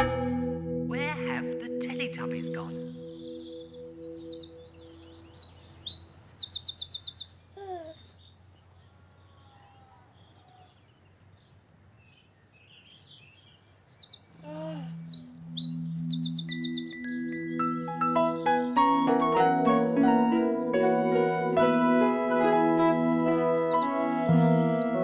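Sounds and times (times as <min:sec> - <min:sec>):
soft sustained tune: 0:00.0 - 0:05.4, 0:14.9 - 0:25.0
birds chirping and trilling: 0:00.0 - 0:25.0.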